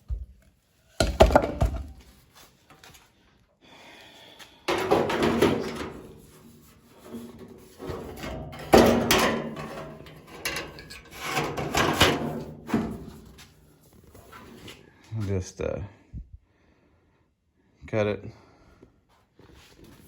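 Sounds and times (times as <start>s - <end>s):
sheet metal panel clanking: 4.7s - 6.2s, 7.2s - 13.2s.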